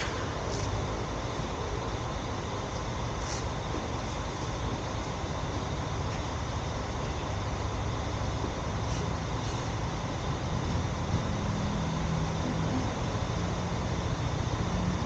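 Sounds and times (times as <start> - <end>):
car engine and road noise: 7.4 - 15.0.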